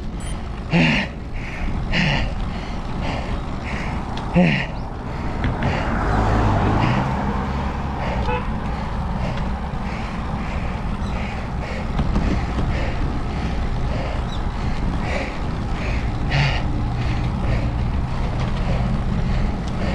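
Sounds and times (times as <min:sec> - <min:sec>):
low rumble of riding: 0:00.0 - 0:19.9
wind buffeting microphone: 0:01.2 - 0:19.7.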